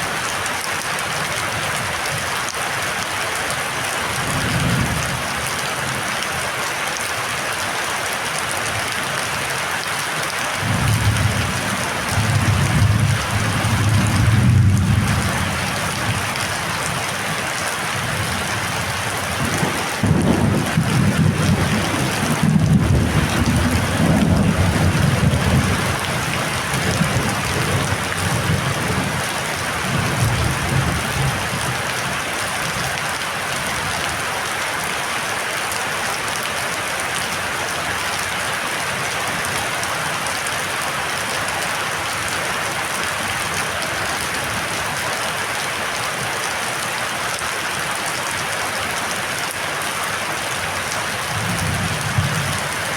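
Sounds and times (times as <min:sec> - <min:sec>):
heavy rain pouring: 0:00.0 - 0:52.9.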